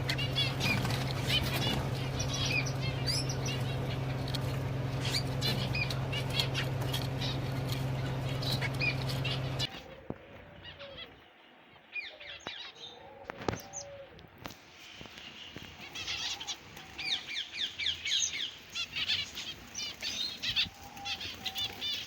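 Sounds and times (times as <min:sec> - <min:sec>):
steady low hum: 0:00.0 - 0:10.4
cage birds chirping: 0:00.0 - 0:14.2, 0:14.8 - 0:22.0.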